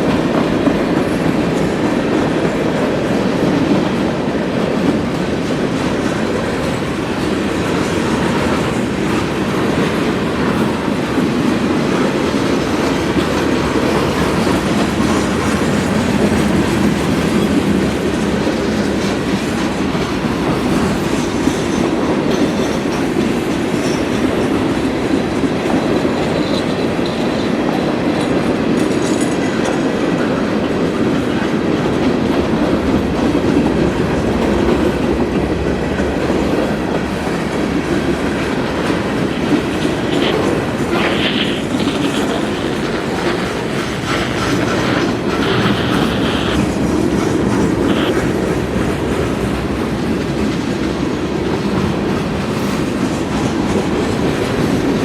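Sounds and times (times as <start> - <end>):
freight train wheels rumbling: 0.0 - 55.0
wheels clacking over rail joints: 0.0 - 55.0.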